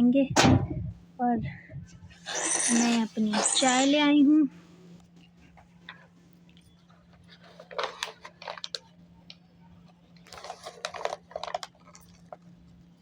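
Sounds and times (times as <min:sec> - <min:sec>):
faint low hum: 0:00.0 - 0:13.0
kindling and paper crackling: 0:07.2 - 0:09.0, 0:10.2 - 0:12.4.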